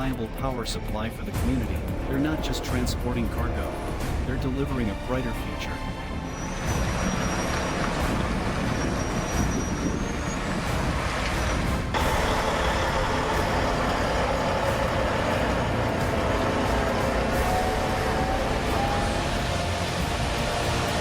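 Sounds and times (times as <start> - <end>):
road noise: 0.0 - 21.0
bright engine drone: 5.9 - 21.0
truck engine under load: 6.3 - 21.0.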